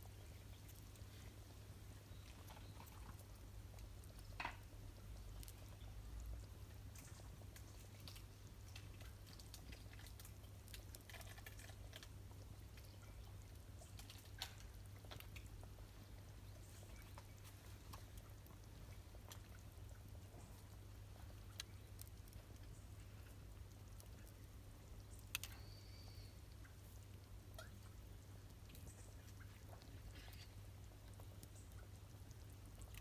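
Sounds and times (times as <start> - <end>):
campfire crackling: 0.0 - 33.0.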